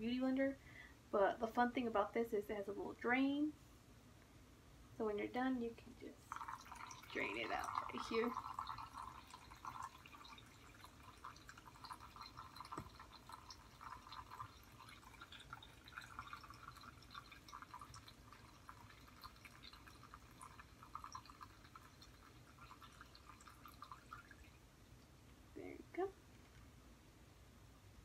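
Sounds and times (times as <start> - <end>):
water trickling down a drain: 6.0 - 25.8.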